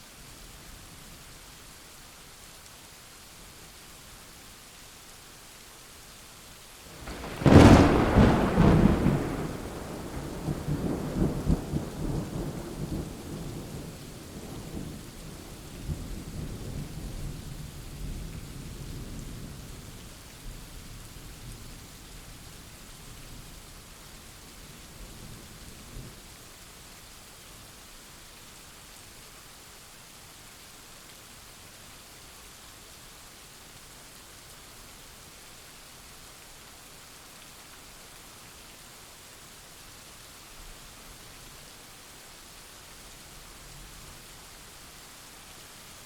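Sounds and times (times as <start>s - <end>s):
steady rain hiss: 0.0s - 46.0s
thunderclap rolling into rumble: 7.0s - 13.1s.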